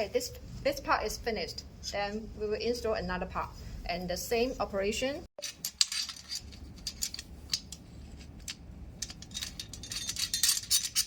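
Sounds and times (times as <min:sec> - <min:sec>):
small metal parts clinking: 0:05.4 - 0:11.0.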